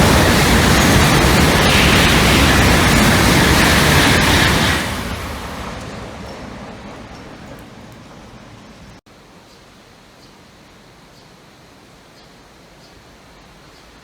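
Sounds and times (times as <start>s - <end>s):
high-speed train passing: 0.0s - 9.0s.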